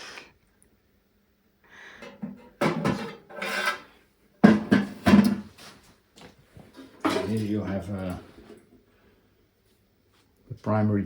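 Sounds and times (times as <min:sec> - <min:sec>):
metal scraping and rubbing: 0:02.9 - 0:03.9.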